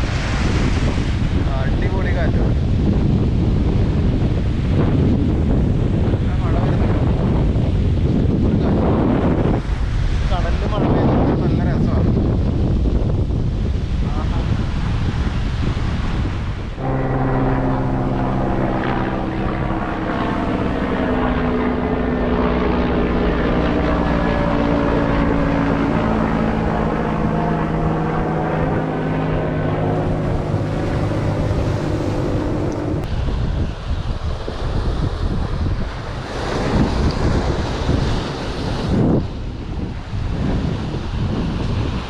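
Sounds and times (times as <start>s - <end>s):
surf: 0.0s - 4.9s, 13.6s - 42.0s
wind buffeting microphone: 0.0s - 42.0s
engine drone: 16.4s - 33.5s.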